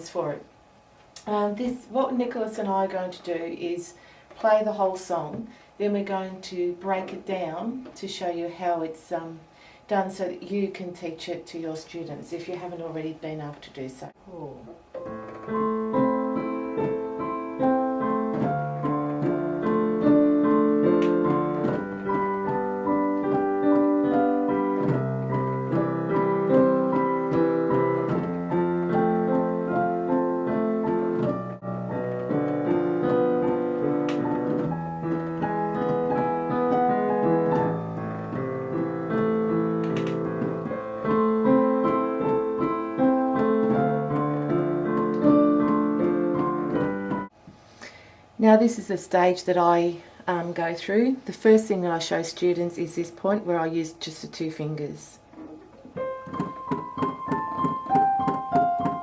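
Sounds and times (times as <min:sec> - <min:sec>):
piano duet: 0:14.6 - 0:47.4, 0:55.2 - 0:59.0.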